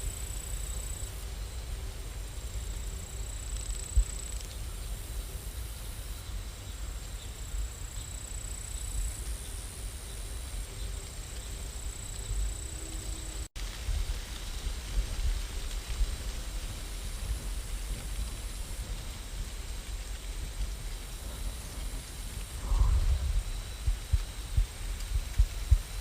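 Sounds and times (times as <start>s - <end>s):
falling rain hiss: 0.0s - 26.0s
low rumble: 12.6s - 26.0s.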